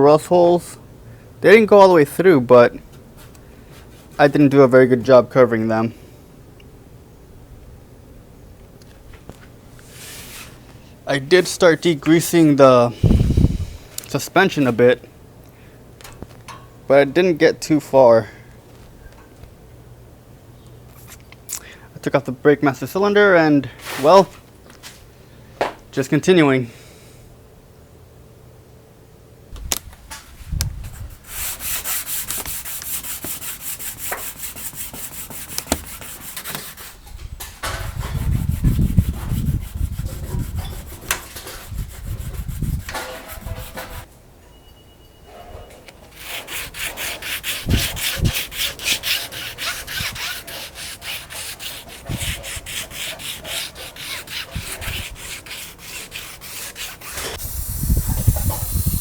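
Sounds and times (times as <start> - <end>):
sandpaper rubbing on metal: 31.0 - 37.0, 37.9 - 44.1, 46.2 - 59.0.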